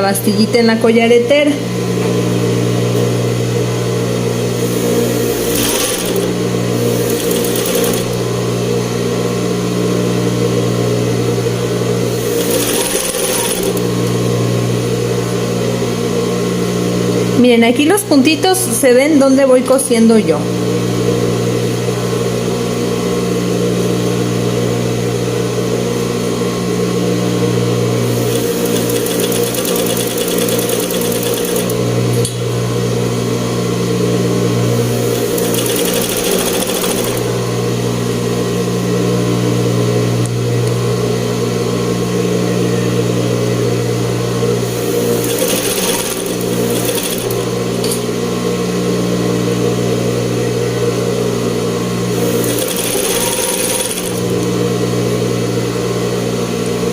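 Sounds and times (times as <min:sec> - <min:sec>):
sewing machine running: 0:04.0 - 0:09.0, 0:11.2 - 0:14.5, 0:27.9 - 0:32.3, 0:34.7 - 0:37.6, 0:44.6 - 0:47.9, 0:52.1 - 0:54.6.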